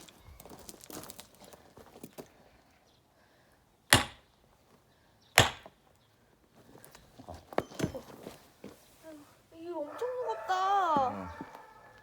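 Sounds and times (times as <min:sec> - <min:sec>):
splitting tool striking log: 0:03.9 - 0:04.3, 0:05.4 - 0:05.8.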